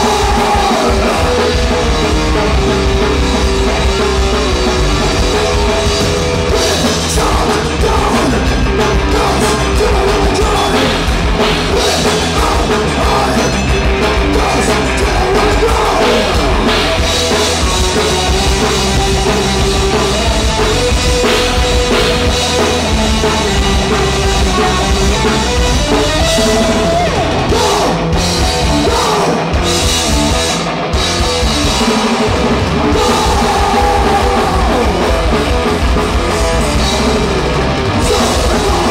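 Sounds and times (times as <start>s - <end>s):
person singing: 0.0s - 3.2s, 3.9s - 17.0s, 24.2s - 29.6s, 32.8s - 35.5s, 38.0s - 38.9s
punk rock band playing: 0.0s - 38.9s.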